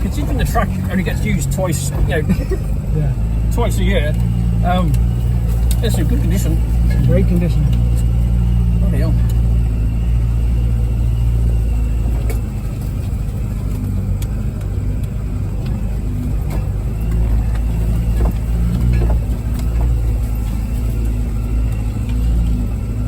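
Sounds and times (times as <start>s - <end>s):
engine running at low speed: 0.0s - 23.0s
sharp ticks and knocks: 12.2s - 22.4s.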